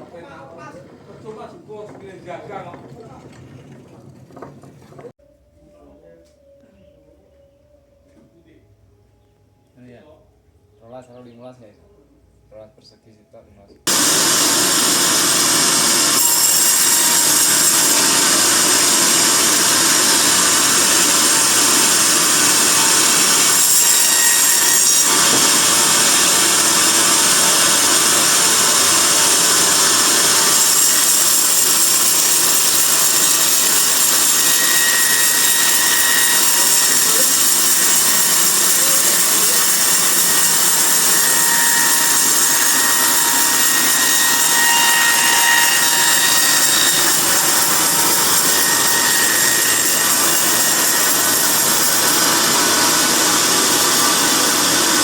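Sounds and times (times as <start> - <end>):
band saw cutting log: 13.9 - 55.0.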